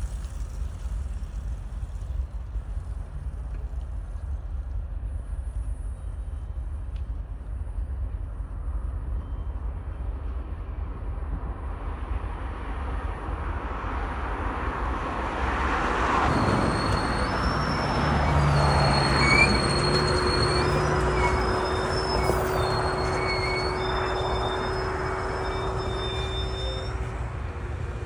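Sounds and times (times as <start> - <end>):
train passing: 16.0 - 28.0
high-pitched wheel squeal: 16.3 - 28.0.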